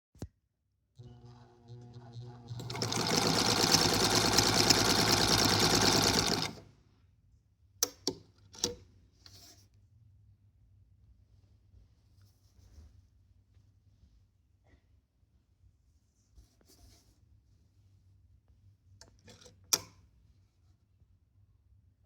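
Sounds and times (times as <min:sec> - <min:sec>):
sewing machine motor stitching: 0:01.0 - 0:06.6.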